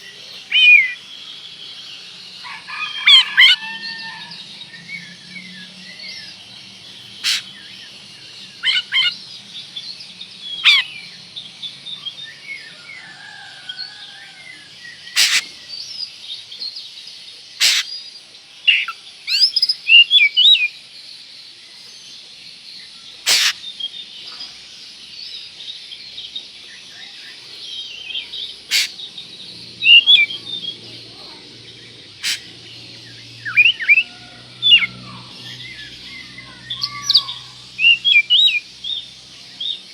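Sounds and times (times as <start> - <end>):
constant high chatter: 0.0 - 39.9
bird singing whistled phrases: 29.8 - 30.8, 33.4 - 35.0.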